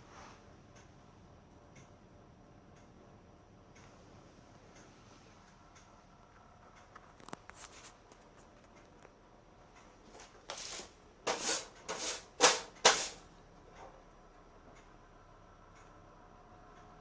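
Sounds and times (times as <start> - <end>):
rustling scrapes: 10.2 - 13.2.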